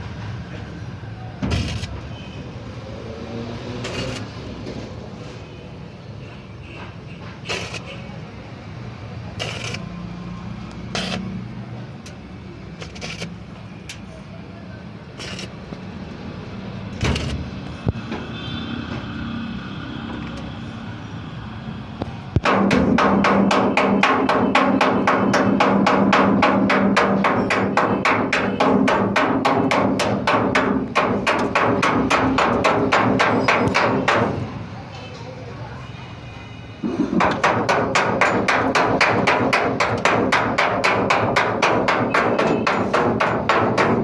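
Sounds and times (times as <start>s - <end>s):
scattered knocks: 22.4s - 34.4s, 37.0s - 44.0s.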